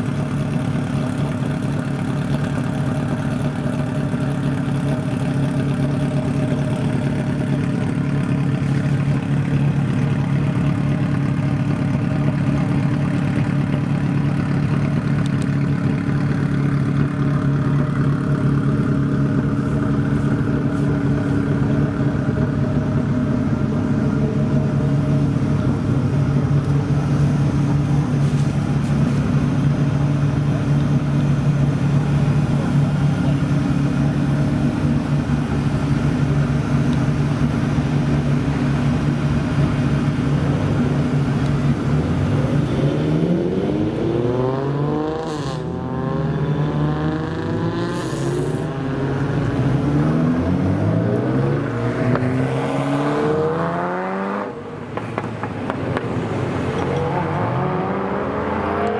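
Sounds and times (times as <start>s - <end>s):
car engine idling: 0.0s - 45.3s, 46.2s - 52.6s
car accelerating through gears: 37.8s - 58.9s.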